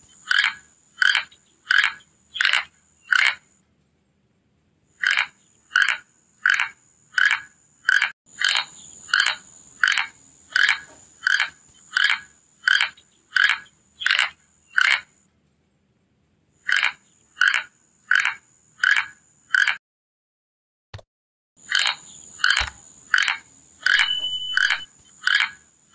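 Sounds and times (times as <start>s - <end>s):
short raspy animal calls: 0.0s - 3.5s, 16.6s - 19.8s, 21.7s - 25.6s
high-pitched whine: 23.9s - 24.9s.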